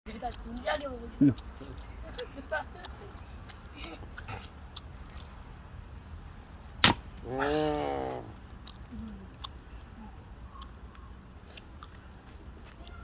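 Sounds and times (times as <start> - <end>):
axe splitting log: 6.8 - 7.1.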